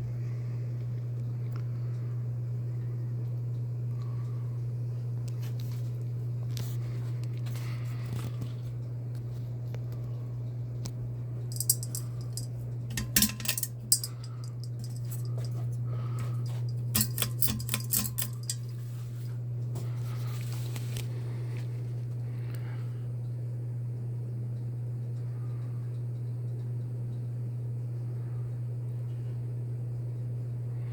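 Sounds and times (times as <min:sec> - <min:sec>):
ceiling fan humming: 0:00.0 - 0:30.9
light metallic clinking: 0:11.5 - 0:18.8.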